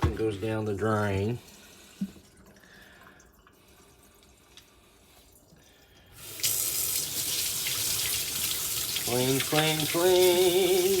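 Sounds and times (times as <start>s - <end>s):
tap water running into sink: 6.2s - 11.0s.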